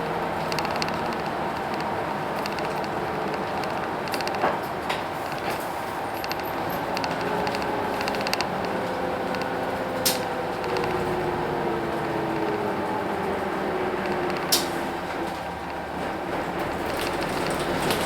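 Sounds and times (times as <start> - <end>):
bus diesel engine drone: 0.0 - 18.0
sharp clicks: 0.3 - 4.6, 5.2 - 5.6, 6.2 - 11.2, 11.9 - 12.7, 14.0 - 14.8, 16.8 - 18.0.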